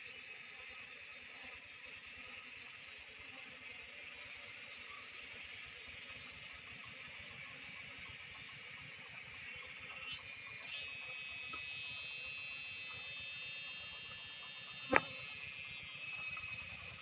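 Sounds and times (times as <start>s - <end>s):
cicadas buzzing: 0.0s - 17.0s
sharp click: 14.9s - 15.2s.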